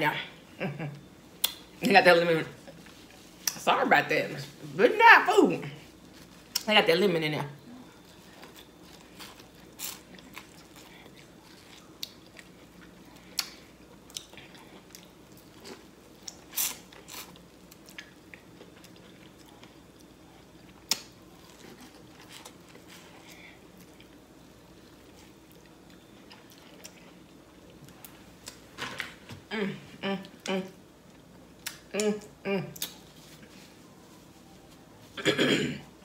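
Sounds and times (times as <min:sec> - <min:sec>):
wet crunches of chewing corn: 0:08.0 - 0:24.2.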